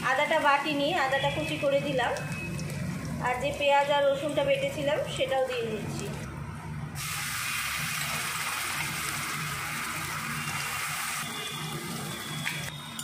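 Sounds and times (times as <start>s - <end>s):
paste sizzling in hot oil: 7.0s - 12.4s.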